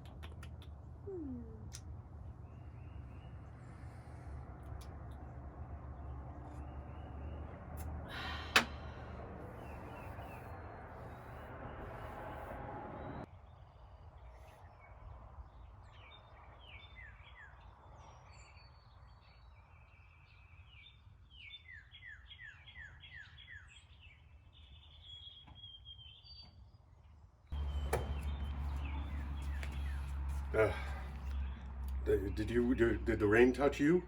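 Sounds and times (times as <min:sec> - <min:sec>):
small birds chirping: 0:00.0 - 0:08.0, 0:08.8 - 0:34.0
low background rumble: 0:00.0 - 0:13.3
loud low hum: 0:00.8 - 0:13.3, 0:27.6 - 0:34.0.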